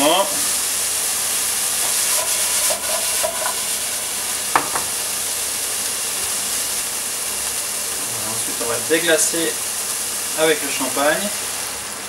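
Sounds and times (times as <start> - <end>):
food sizzling in a frying pan: 0.0 - 12.0
sharp knocks: 4.5 - 4.9.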